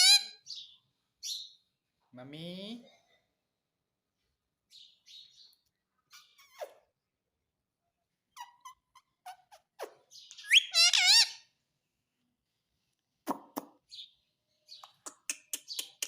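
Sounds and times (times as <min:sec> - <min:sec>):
parrot chirping: 0:00.0 - 0:01.6, 0:08.3 - 0:11.6.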